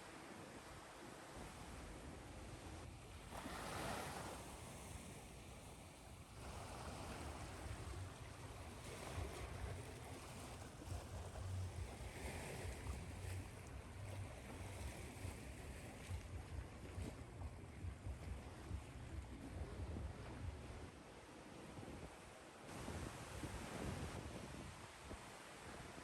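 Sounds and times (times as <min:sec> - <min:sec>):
ocean waves washing in: 0:01.2 - 0:26.0
low rumble: 0:13.9 - 0:20.9.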